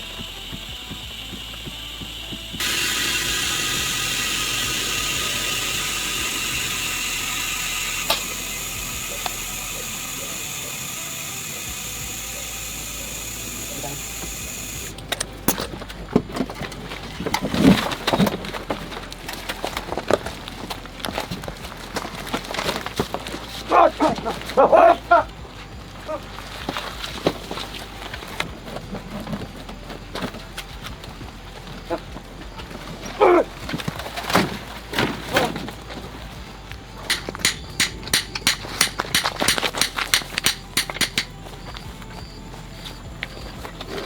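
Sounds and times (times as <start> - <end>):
machine whining: 0.0 - 44.0
knocks and clatter: 26.6 - 42.2.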